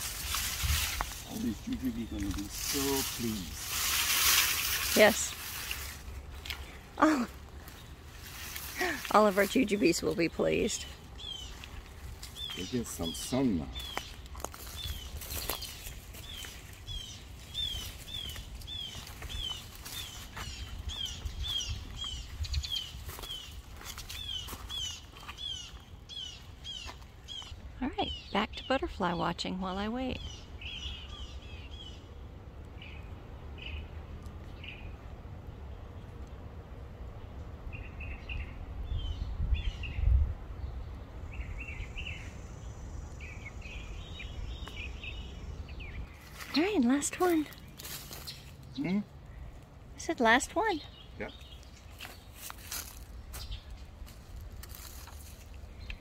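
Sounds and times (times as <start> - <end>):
low outdoor rumble: 0.0 - 56.0
bird chirping: 1.1 - 3.9, 8.8 - 32.2, 37.2 - 49.4.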